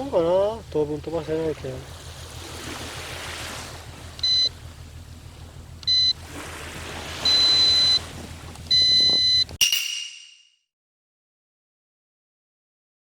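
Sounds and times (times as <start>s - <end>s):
ocean surf: 1.6s - 4.2s, 6.2s - 8.5s
electronic beeper beeping: 8.7s - 10.5s.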